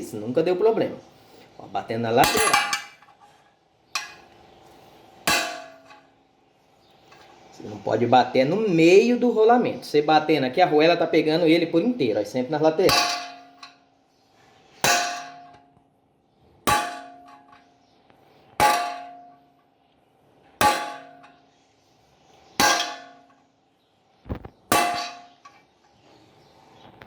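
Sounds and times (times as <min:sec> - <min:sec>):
hammer striking steel: 0:02.2 - 0:03.1, 0:04.0 - 0:04.3, 0:05.3 - 0:06.0, 0:12.9 - 0:13.8, 0:14.8 - 0:15.6, 0:16.7 - 0:17.6, 0:18.6 - 0:19.4, 0:20.6 - 0:21.4, 0:22.6 - 0:23.3, 0:24.7 - 0:25.6.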